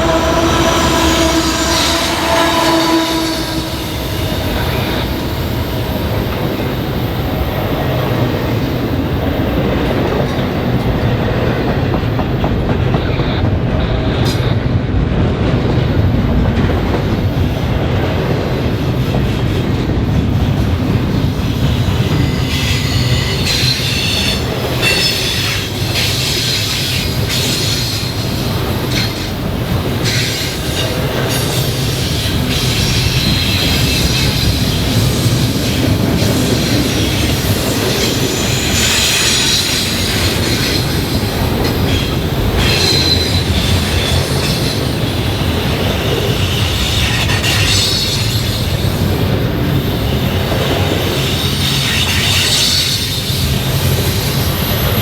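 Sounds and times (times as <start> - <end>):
train wheels squealing: 0.0 - 8.4, 21.4 - 55.0
train cars rumbling over rails: 0.0 - 55.0.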